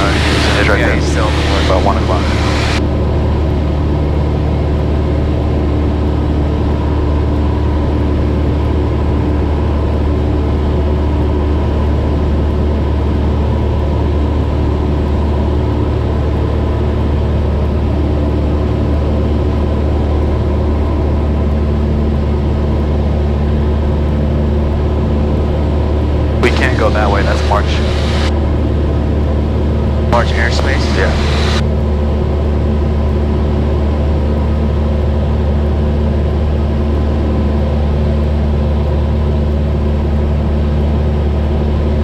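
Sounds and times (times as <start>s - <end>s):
airplane engine droning: 0.0s - 42.0s.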